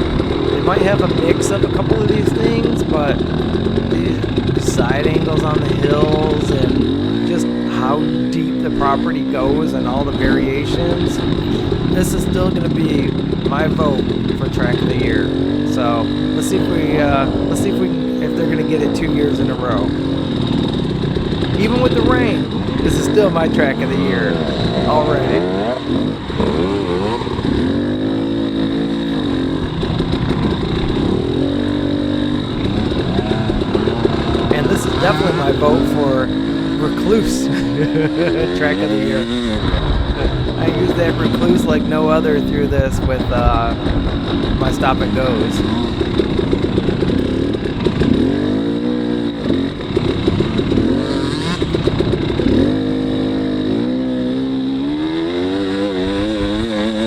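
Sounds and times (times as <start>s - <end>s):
two-stroke dirt bike engine revving: 0.0s - 57.0s.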